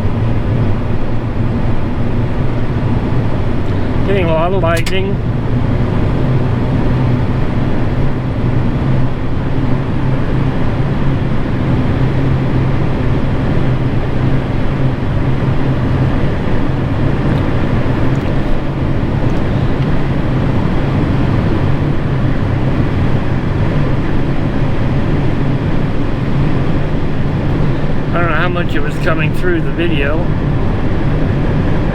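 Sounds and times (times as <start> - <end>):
engine hum inside vehicle: 0.0 - 31.9
road noise: 0.0 - 31.9.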